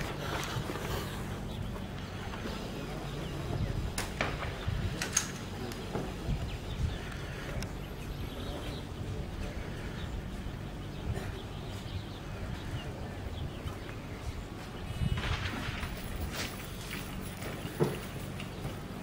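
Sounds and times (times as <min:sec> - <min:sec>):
steady low outdoor hum: 0:00.0 - 0:19.0.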